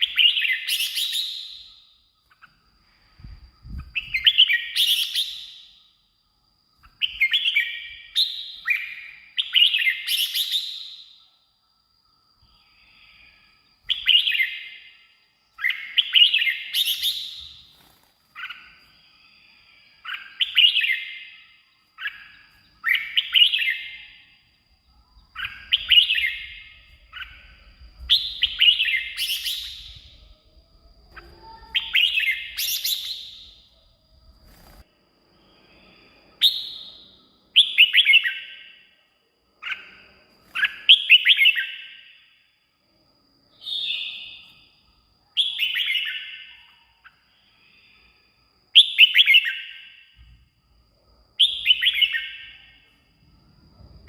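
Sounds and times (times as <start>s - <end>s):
bulbul singing warbled phrases: 31.1s - 33.6s.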